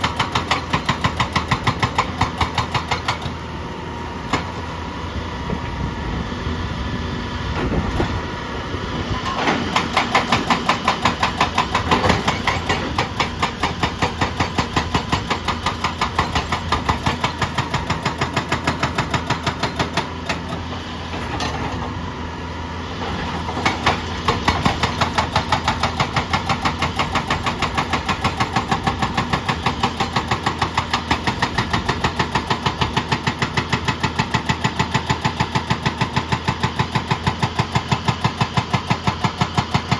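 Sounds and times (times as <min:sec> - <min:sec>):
diesel machinery pounding: 0:00.0 - 0:39.9.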